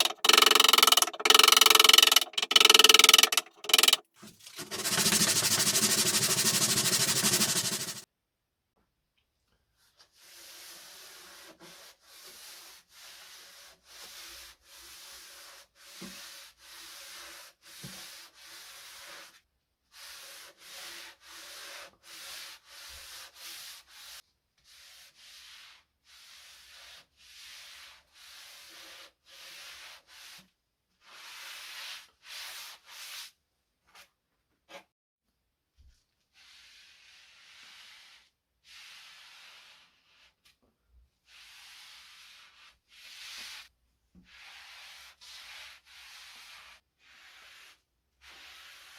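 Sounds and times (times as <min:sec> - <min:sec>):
hand rubbing on wood: 0:00.0 - 0:08.0.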